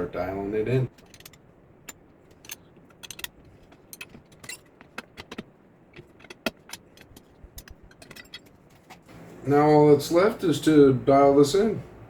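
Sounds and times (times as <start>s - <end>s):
metal pieces clicking and clinking: 0.9s - 8.8s.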